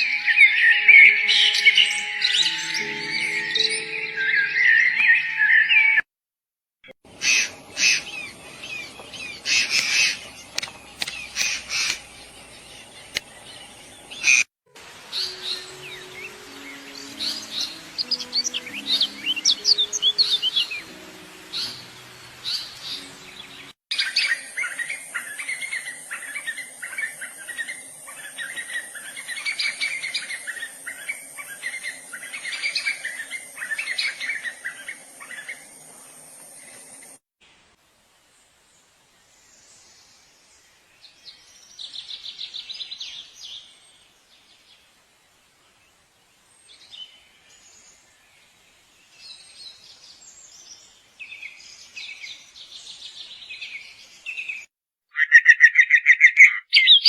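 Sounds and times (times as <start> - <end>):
birds calling and chirping: 0.0 - 6.0, 7.1 - 37.2, 49.2 - 57.0
steady high hiss: 7.1 - 53.3.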